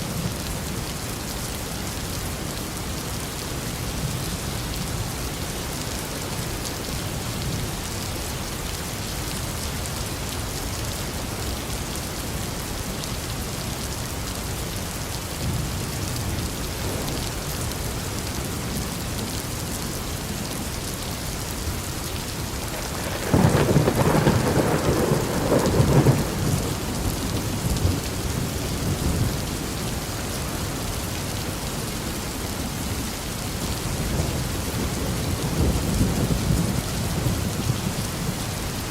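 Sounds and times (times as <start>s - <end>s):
steady rain falling: 0.0s - 38.9s
thunder rumbling: 22.7s - 29.4s.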